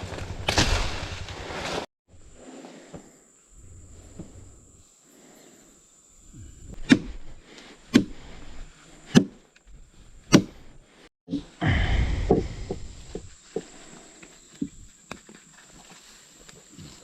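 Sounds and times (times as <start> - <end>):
rustling noise: 0.0 - 2.9.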